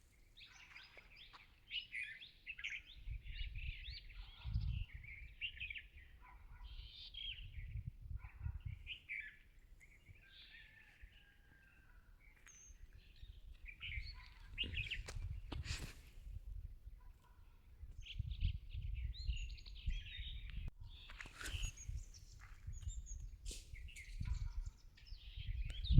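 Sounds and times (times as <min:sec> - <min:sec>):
small birds chirping: 0:00.0 - 0:25.9
wind on microphone: 0:02.9 - 0:09.1, 0:13.1 - 0:25.9.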